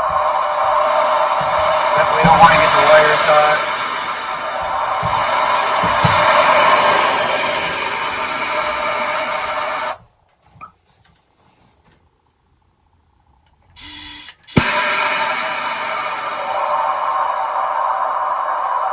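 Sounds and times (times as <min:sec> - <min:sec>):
short burst: 0:00.0 - 0:10.0
torch flame hissing: 0:00.0 - 0:10.0, 0:14.5 - 0:18.9.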